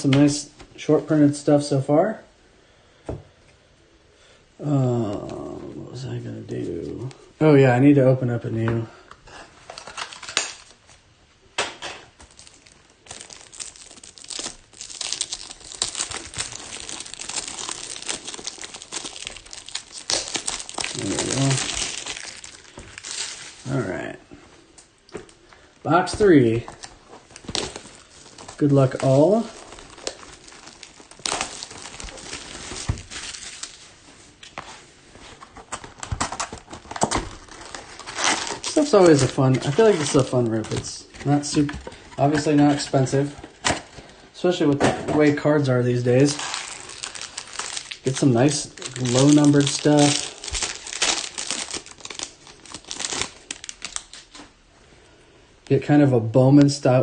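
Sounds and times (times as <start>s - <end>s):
plastic shrink-wrap crinkling: 9.6s - 11.0s, 12.1s - 24.2s, 25.1s - 44.2s, 45.6s - 54.6s.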